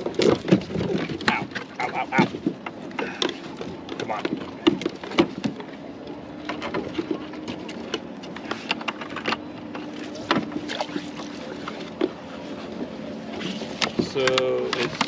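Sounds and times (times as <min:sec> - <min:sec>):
gear knocking in plastic kayak: 0:00.0 - 0:15.0.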